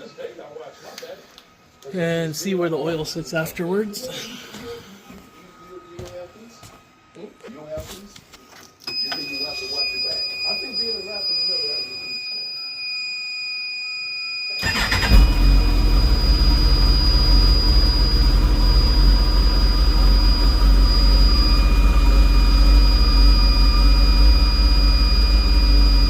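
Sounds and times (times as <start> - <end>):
high-pitched electronic warning tone: 8.9 - 26.0
car engine starting and idling: 14.6 - 26.0.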